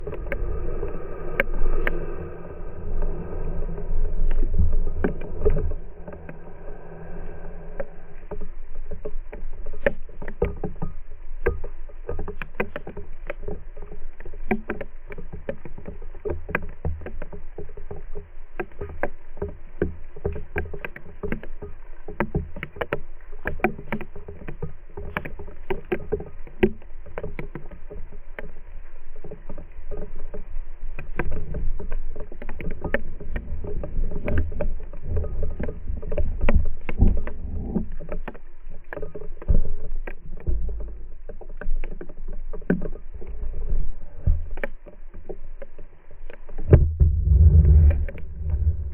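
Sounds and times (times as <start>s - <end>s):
low rumble: 0.0s - 8.2s, 46.7s - 48.9s
raindrops tapping: 31.0s - 48.9s.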